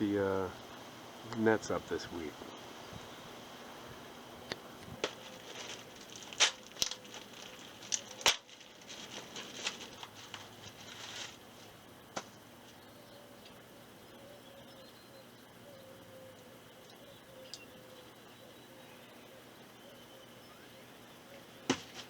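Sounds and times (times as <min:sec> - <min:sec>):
close rustling and crackling: 0:00.4 - 0:11.8.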